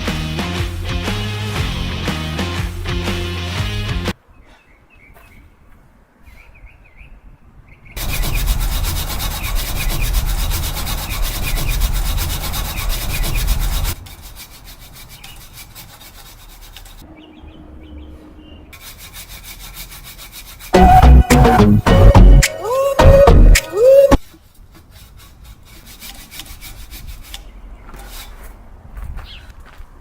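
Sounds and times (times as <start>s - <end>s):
birds chirping: 4.2s - 8.6s, 17.0s - 18.8s, 28.9s - 30.0s
chainsaw cutting wood: 8.0s - 15.4s.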